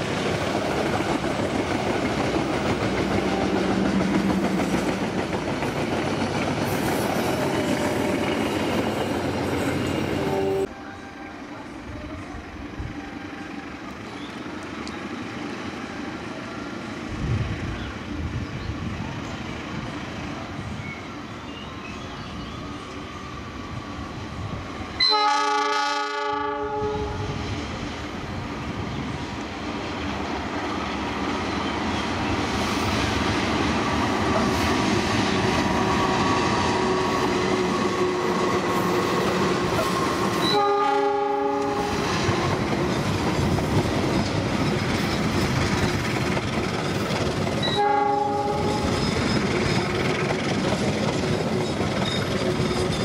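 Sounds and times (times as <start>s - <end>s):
train rumble and wheel clatter: 0.0s - 53.0s
locomotive horn blasts: 25.0s - 27.4s, 40.4s - 42.0s, 47.7s - 48.9s.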